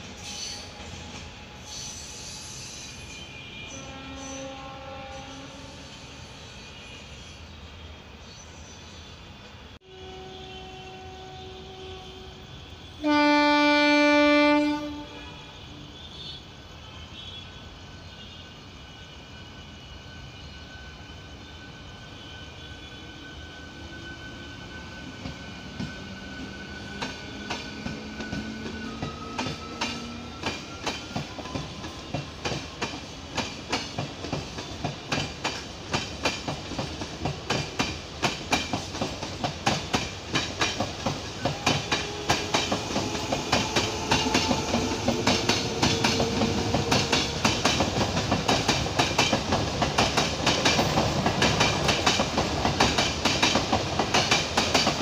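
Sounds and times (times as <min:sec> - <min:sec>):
train rumbling past: 0:00.0 - 0:55.0
train horn blast: 0:03.1 - 0:06.0, 0:09.8 - 0:18.6, 0:41.4 - 0:47.5
wheels clacking over rail joints: 0:26.9 - 0:55.0.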